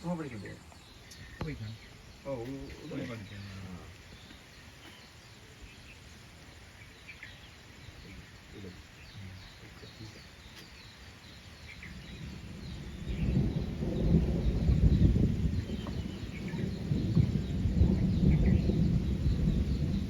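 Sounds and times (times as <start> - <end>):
faint bird chirps: 0.0 - 20.0
forest ambience: 0.0 - 20.0
low rumbling noise: 11.9 - 20.0.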